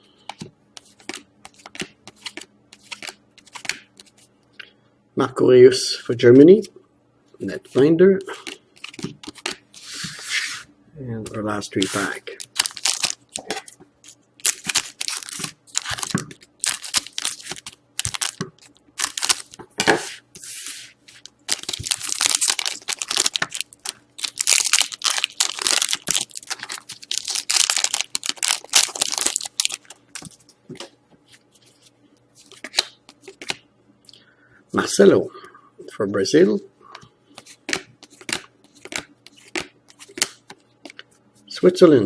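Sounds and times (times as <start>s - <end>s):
foil wrapper tearing and crinkling: 11.8s - 13.6s, 14.4s - 19.6s, 21.5s - 30.0s.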